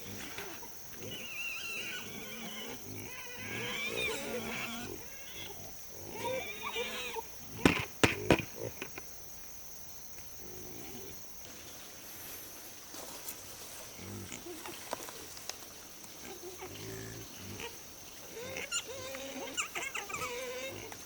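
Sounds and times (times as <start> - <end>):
wavering animal calls: 0.0 - 9.0, 16.2 - 21.0
sharp knocks: 7.6 - 9.0.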